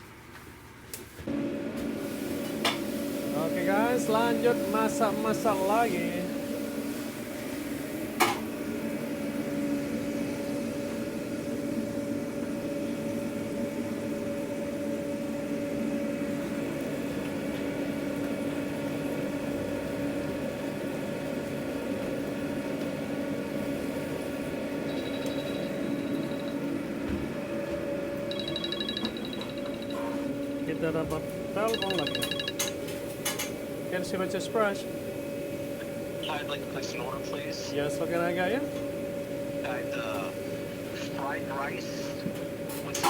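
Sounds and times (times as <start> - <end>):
kitchen equipment humming: 1.2 - 43.0
phone ringtone: 24.8 - 26.7, 28.2 - 30.4, 31.6 - 33.0.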